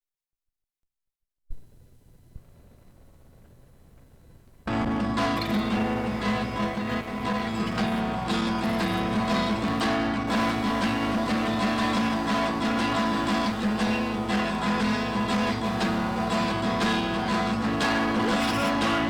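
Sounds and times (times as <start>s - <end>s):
plucked guitar music: 4.7s - 19.0s.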